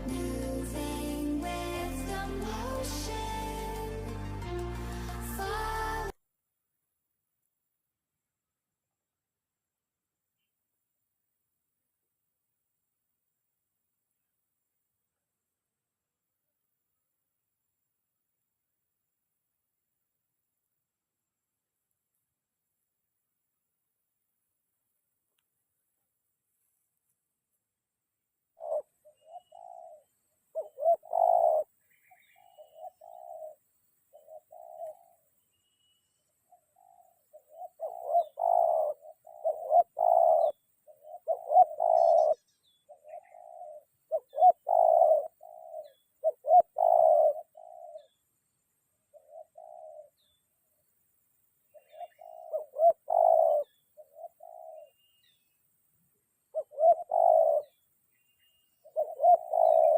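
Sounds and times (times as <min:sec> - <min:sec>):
doves cooing: 0:28.5 - 0:35.3, 0:36.4 - 0:48.2, 0:49.1 - 0:50.4, 0:51.7 - 0:55.4, 0:56.5 - 0:57.8, 0:58.7 - 0:59.9.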